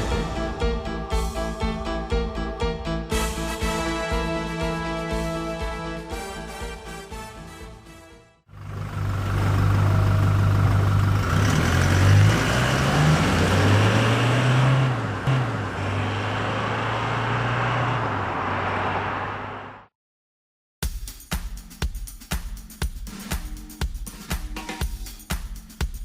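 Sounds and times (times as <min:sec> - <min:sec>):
diesel exhaust idling and revving: 0:08.5 - 0:19.9.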